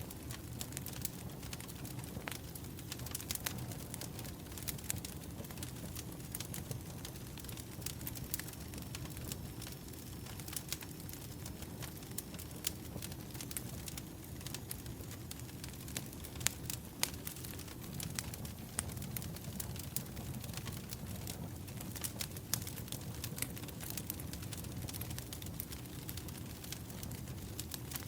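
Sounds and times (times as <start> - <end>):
wood fire crackling and popping: 0.0 - 28.0.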